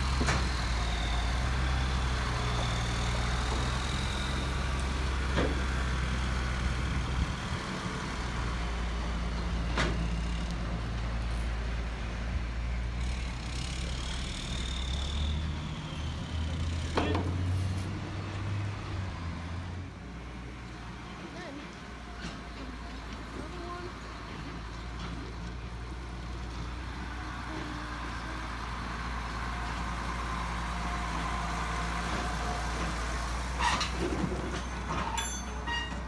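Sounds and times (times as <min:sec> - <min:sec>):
truck engine running: 0:00.0 - 0:36.0
sharp metallic clanks: 0:33.7 - 0:36.0.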